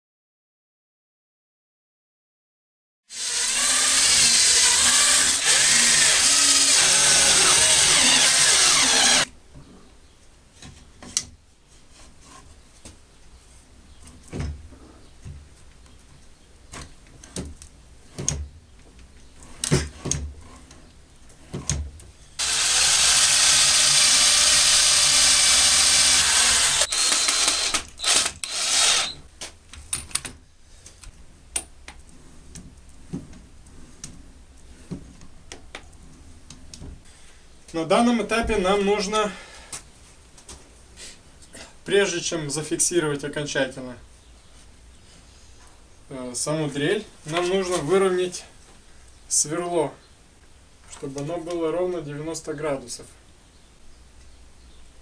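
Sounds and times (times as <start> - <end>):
electric drill running: 3.1 - 9.3, 22.4 - 29.2.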